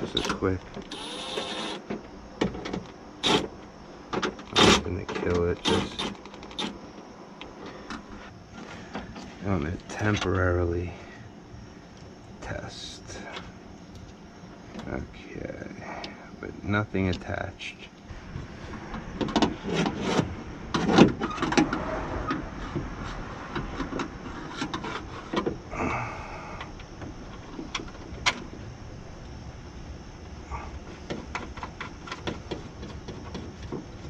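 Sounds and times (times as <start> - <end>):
window motor whine: 0.0 - 2.2
parts clicking and knocking: 0.0 - 10.4, 18.7 - 25.6, 30.8 - 34.0.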